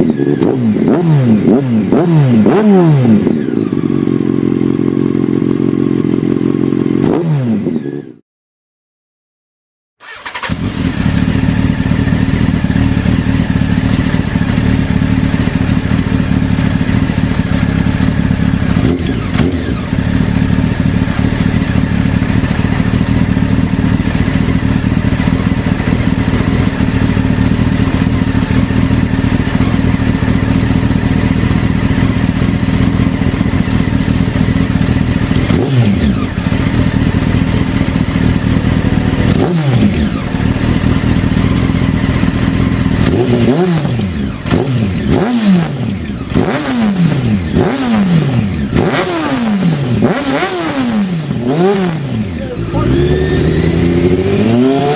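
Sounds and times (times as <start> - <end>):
motorcycle engine running: 0.0 - 8.2, 10.0 - 54.9.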